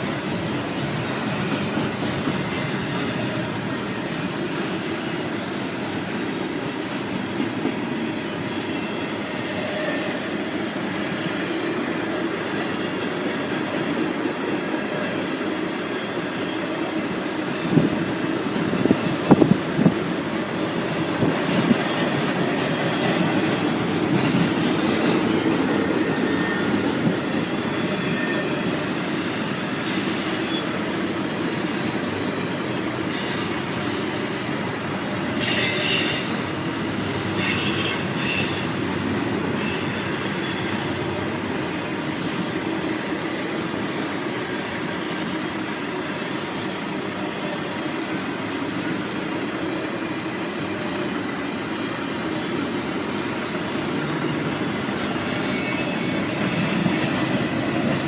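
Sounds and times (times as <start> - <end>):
freight train rumbling: 0.0 - 58.0
high wheel squeals: 8.0 - 12.0, 21.0 - 38.9, 39.5 - 41.2, 51.1 - 57.6.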